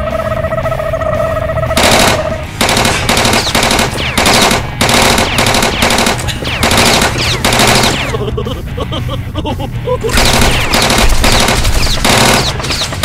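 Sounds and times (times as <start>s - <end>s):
automatic gunfire bursts: 1.8s - 8.2s, 10.1s - 13.0s.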